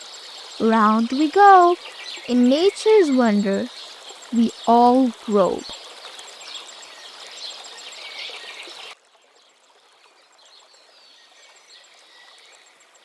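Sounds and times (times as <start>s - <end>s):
small birds chirping: 0.1s - 9.0s.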